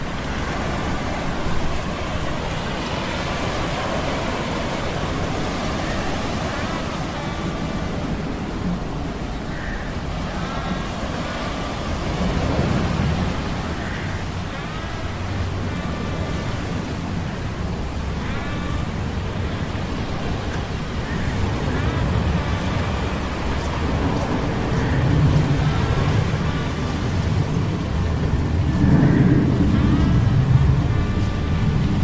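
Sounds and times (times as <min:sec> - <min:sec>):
steady rain: 0:00.0 - 0:32.0
rolling thunder: 0:21.4 - 0:32.0.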